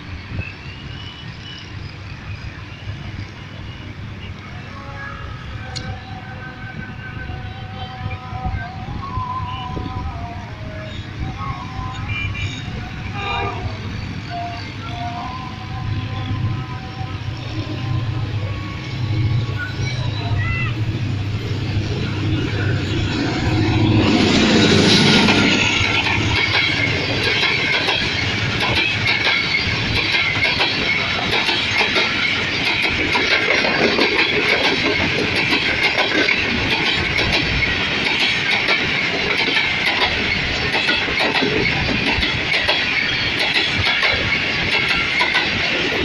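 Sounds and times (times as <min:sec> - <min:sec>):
diesel locomotive engine: 0:00.0 - 0:46.0
train wheels rolling rush: 0:00.0 - 0:46.0
wheels clacking over rail joints: 0:24.0 - 0:46.0.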